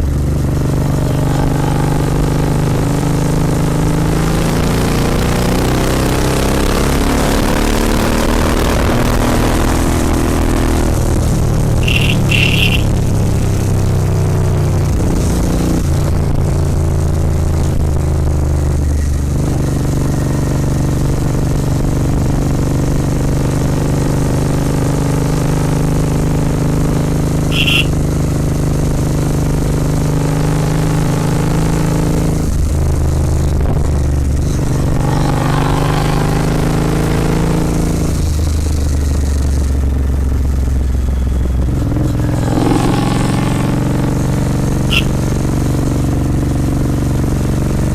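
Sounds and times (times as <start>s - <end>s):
motorcycle engine running: 0.0s - 47.9s
high-pitched chirp: 11.8s - 12.9s, 27.5s - 27.9s, 44.9s - 45.1s.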